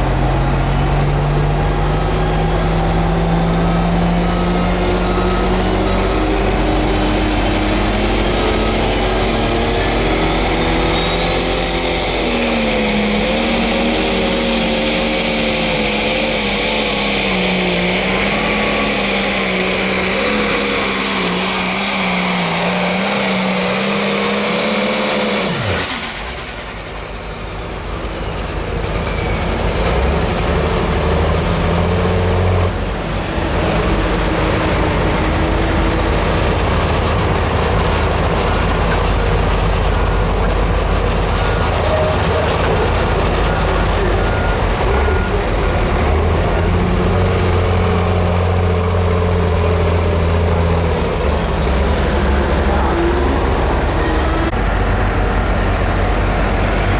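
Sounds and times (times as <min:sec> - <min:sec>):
tractor engine at full throttle: 0:00.0 - 0:56.9
low engine rumble: 0:25.5 - 0:56.9.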